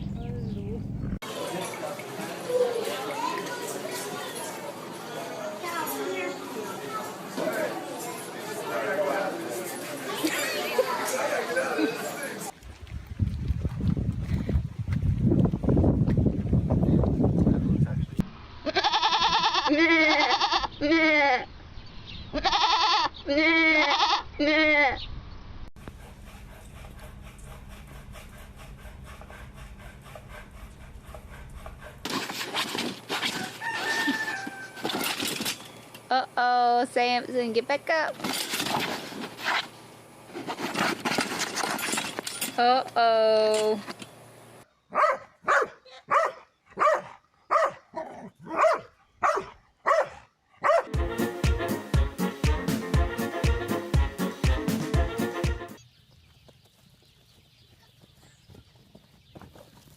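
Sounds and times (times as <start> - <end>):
steady rustling: 25.9 - 36.0, 38.1 - 42.6
rooster crowing: 33.3 - 35.2
dog barking: 44.9 - 50.9
music with a steady beat: 50.9 - 55.8.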